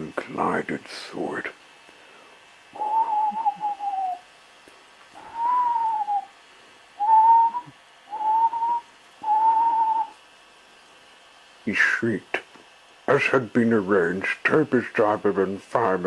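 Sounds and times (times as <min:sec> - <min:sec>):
steam hissing: 0:05.1 - 0:10.2.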